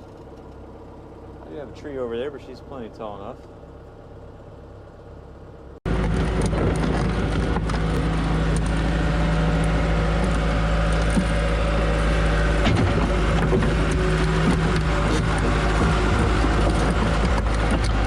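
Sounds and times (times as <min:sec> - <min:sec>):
heavy diesel engine running: 0:00.0 - 0:18.0.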